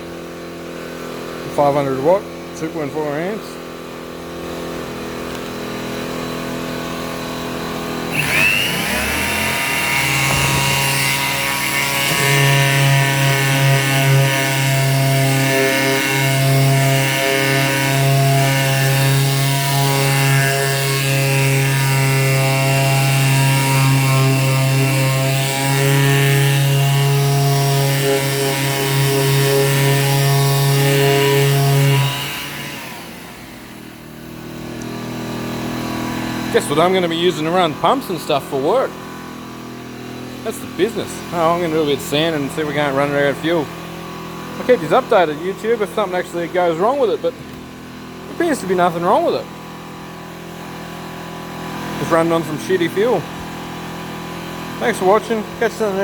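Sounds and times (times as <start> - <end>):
generator engine running: 0.0 - 20.3, 31.8 - 56.0
electric sander motor whining: 3.7 - 56.0.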